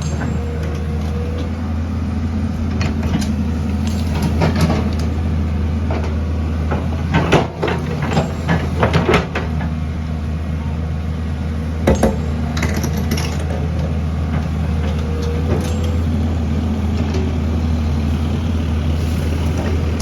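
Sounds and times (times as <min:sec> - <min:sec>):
knocks and clanks: 0:00.0 - 0:01.6, 0:02.7 - 0:05.2, 0:05.8 - 0:09.8, 0:11.8 - 0:16.2
diesel engine running: 0:00.0 - 0:20.0.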